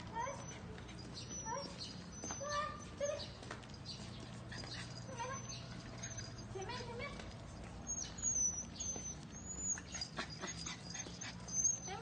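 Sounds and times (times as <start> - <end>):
puppy whimpering: 0.0 - 12.0.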